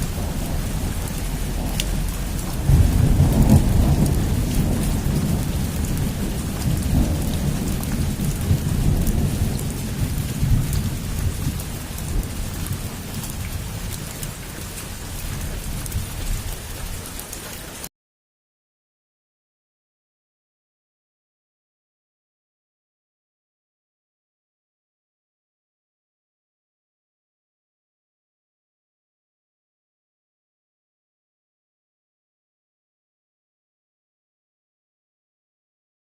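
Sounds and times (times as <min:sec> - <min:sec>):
low rumble of thunder: 0:00.0 - 0:17.1
heavy rain on a roof: 0:00.0 - 0:17.9.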